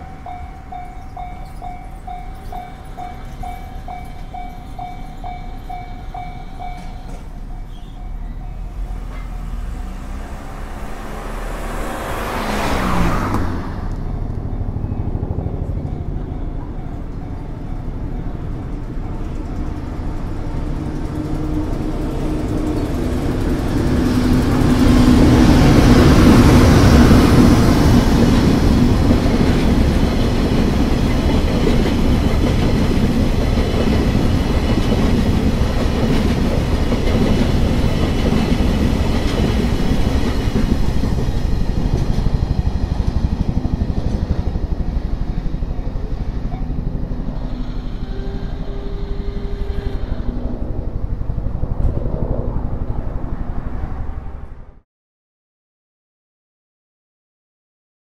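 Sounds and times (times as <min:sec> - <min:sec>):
freight train rumble: 0:00.0 - 0:54.8
wheels clattering over rail joints: 0:12.8 - 0:47.4.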